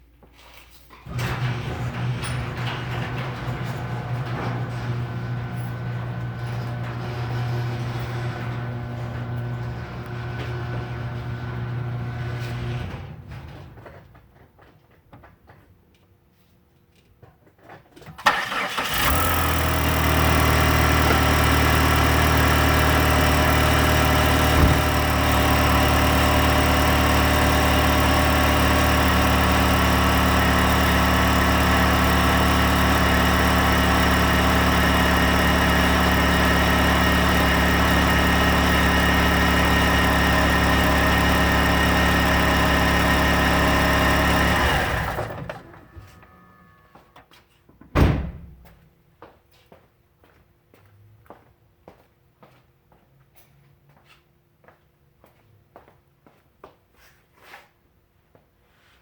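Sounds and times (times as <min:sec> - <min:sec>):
engine cranking and starting: 0:01.0 - 0:14.1, 0:18.0 - 0:46.6
car engine idling: 0:18.3 - 0:46.0.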